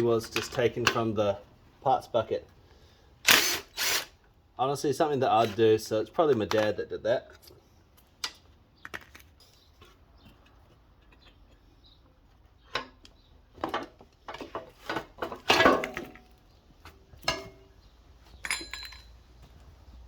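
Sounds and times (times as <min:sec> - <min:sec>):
metal tools clanking: 0:13.6 - 0:16.3, 0:17.2 - 0:19.2
high ringing metal clink: 0:18.4 - 0:19.2.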